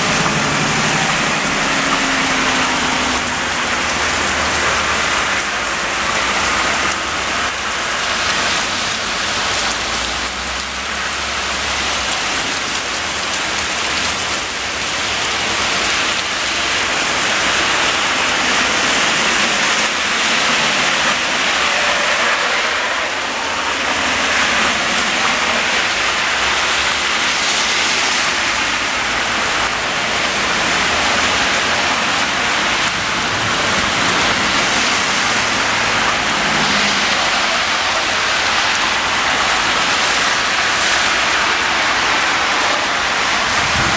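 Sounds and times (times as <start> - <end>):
heavy rain downpour hissing: 0.0 - 43.9.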